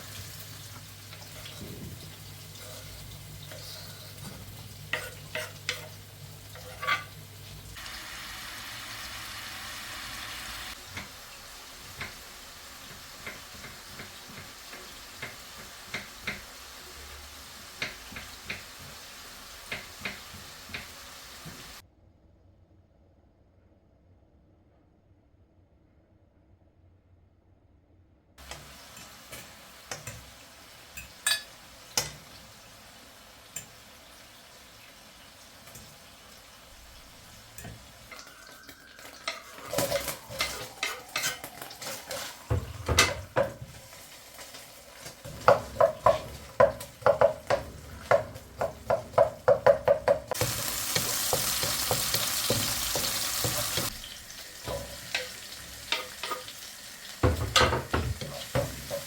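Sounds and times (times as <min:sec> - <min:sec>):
utensil clinking against a dish: 0:31.0 - 0:32.2.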